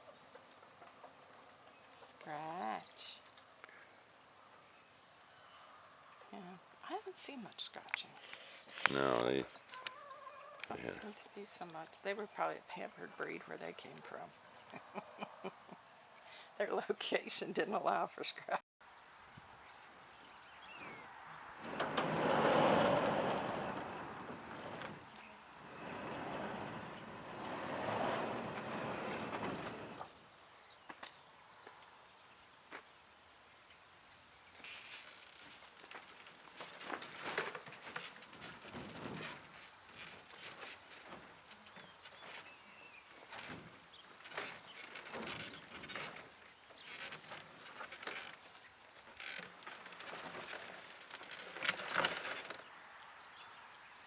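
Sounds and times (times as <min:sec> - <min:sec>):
insects calling: 0:08.0 - 0:11.8, 0:18.8 - 0:54.0
rustling noise: 0:20.8 - 0:30.4, 0:34.6 - 0:52.7.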